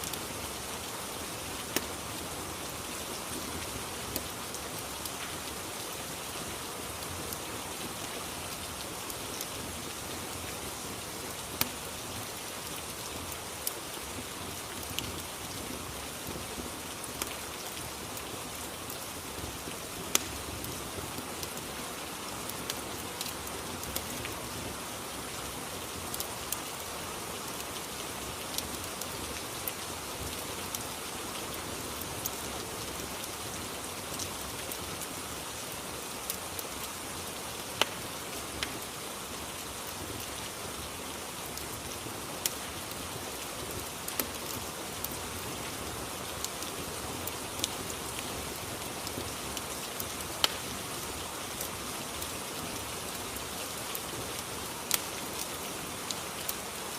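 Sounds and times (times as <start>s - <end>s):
steady rain: 0.0s - 56.9s
fireplace crackling pops: 20.1s - 20.3s, 50.4s - 50.6s.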